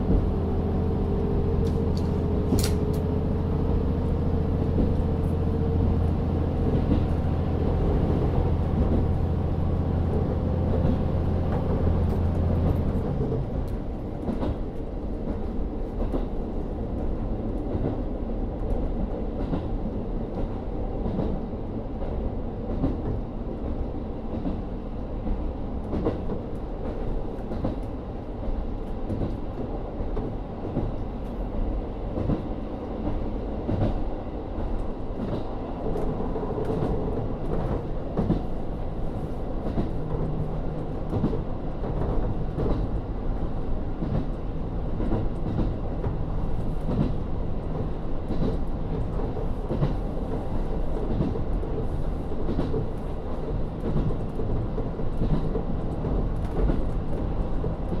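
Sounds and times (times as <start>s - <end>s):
diesel railcar engine rumble: 0.0s - 58.0s
wheels clicking over rail joints: 1.6s - 3.1s.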